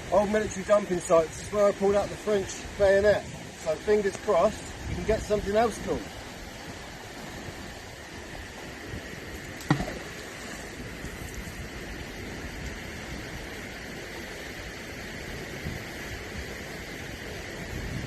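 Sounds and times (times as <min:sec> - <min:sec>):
steady outdoor hiss: 0:00.0 - 0:18.0
magnet plopping into water: 0:09.6 - 0:10.3.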